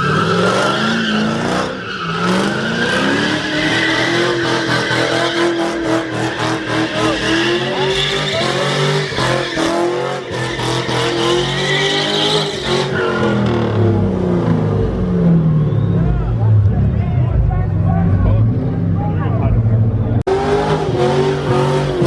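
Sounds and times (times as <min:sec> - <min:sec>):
tires squealing: 0:00.0 - 0:22.0
car engine at high revs: 0:18.0 - 0:22.0.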